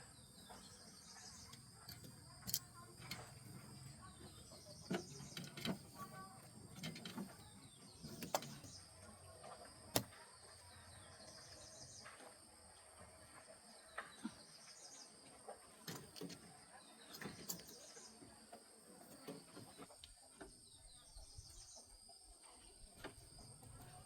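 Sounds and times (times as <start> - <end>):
hand tools knocking and clicking: 1.4 - 8.8.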